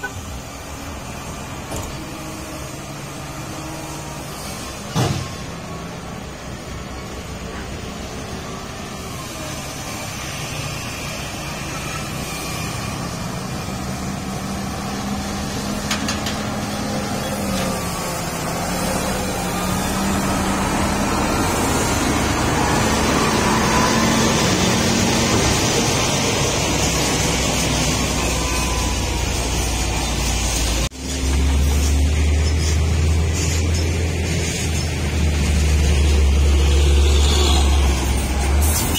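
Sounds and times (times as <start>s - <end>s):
truck diesel engine: 0.0s - 38.9s.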